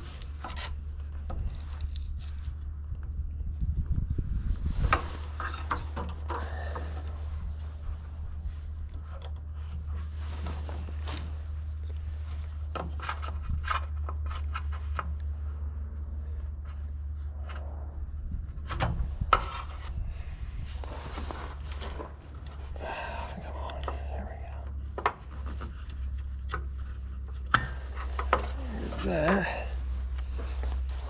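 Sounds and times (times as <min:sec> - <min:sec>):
steady low hum: 0:00.0 - 0:31.0
plastic and rubber scraping: 0:18.7 - 0:22.8.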